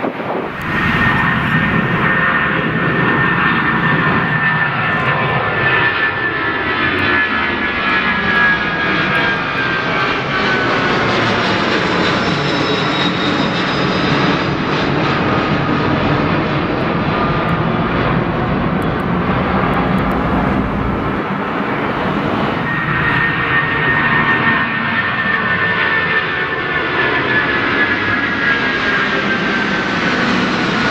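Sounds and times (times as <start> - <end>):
jet engines roaring: 0.0 - 30.9
high-pitched whine: 0.2 - 29.8
whine sliding down in pitch: 0.3 - 6.4, 17.0 - 26.3.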